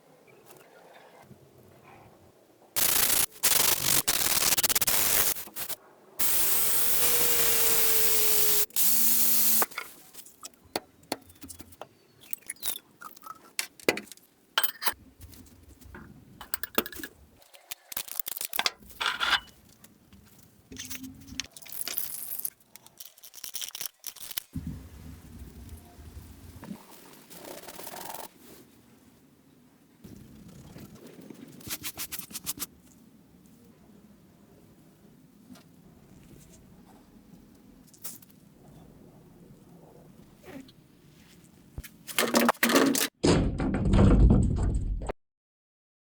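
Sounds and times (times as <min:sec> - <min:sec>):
power tool grinding metal: 0:02.8 - 0:09.7.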